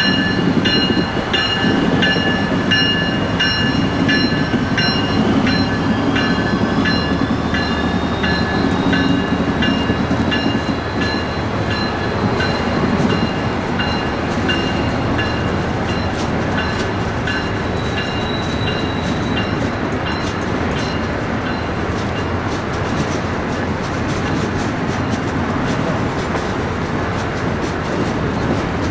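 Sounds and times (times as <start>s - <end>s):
bell ringing: 0.0s - 21.8s
train rumbling past: 0.0s - 28.9s.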